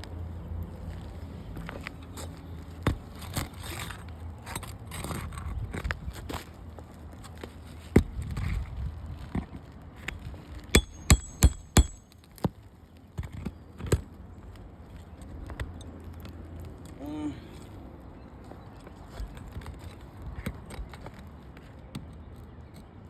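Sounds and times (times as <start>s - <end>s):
hammer striking steel tool: 10.8s - 12.0s.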